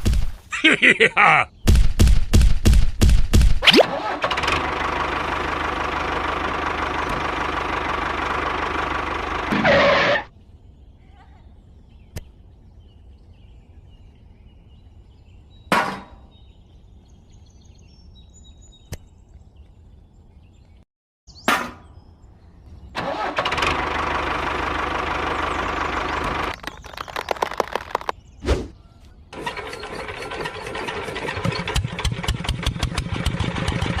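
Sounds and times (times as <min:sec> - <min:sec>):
motor running: 0:04.0 - 0:10.3, 0:23.1 - 0:28.1
faint clicks: 0:26.5 - 0:28.2.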